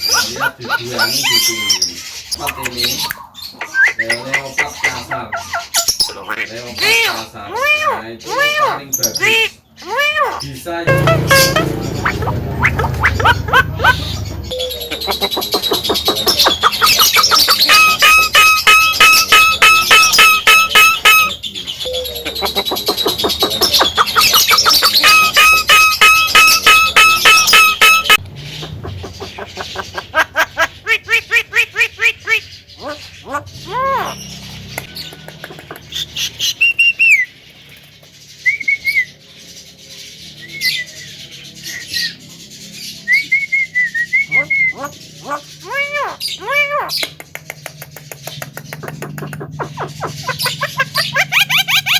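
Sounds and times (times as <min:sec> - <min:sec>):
bird calling loudly: 0:00.0 - 0:35.2, 0:44.2 - 0:47.2, 0:48.6 - 0:51.9.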